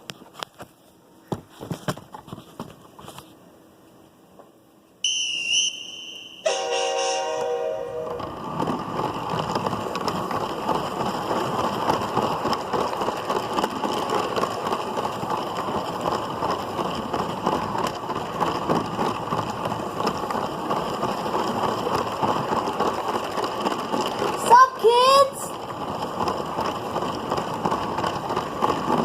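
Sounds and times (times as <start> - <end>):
toy train rattling on plastic track: 8.2 - 29.0.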